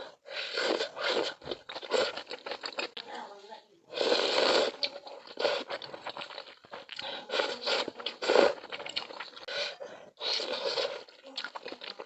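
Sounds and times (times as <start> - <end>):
wet chewing mouth noises: 0.0 - 3.2, 3.9 - 12.0.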